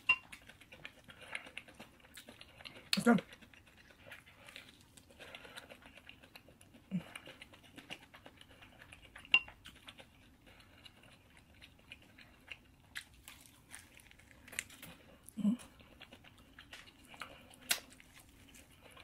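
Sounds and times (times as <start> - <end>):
chewing with wet mouth clicks: 0.0 - 19.0
crisp crunches of biting: 13.0 - 15.0.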